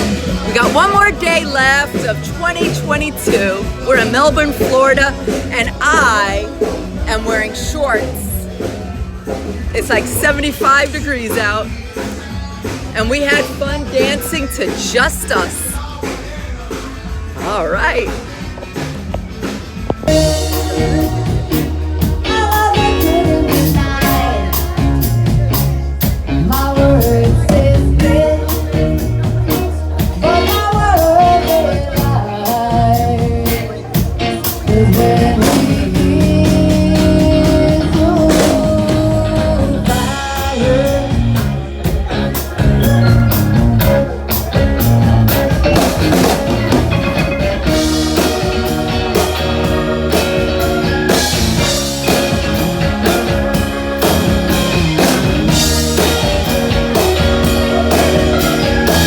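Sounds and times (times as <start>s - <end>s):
bass: 0.0s - 59.0s
drum kit beat: 0.0s - 59.0s
electric guitar: 17.1s - 59.0s.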